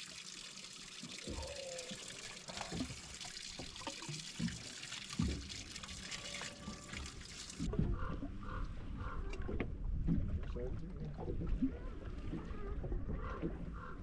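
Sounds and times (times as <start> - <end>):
water pouring and trickling: 0.0 - 7.7.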